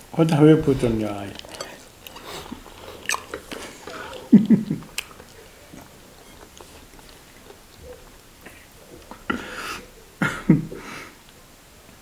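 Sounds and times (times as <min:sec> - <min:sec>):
chewing and biting food: 0:00.3 - 0:09.2.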